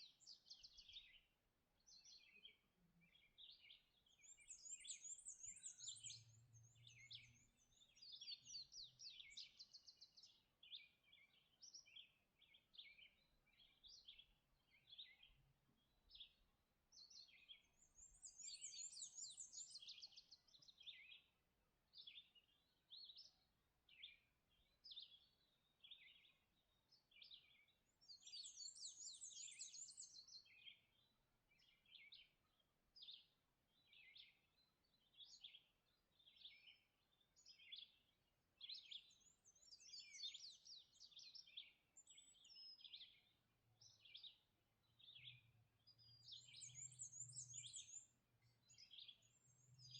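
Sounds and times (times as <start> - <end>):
songbirds chirping: 0.0 - 49.9
warbling bird song: 3.1 - 15.4, 17.0 - 21.3, 27.2 - 31.0, 33.0 - 49.9.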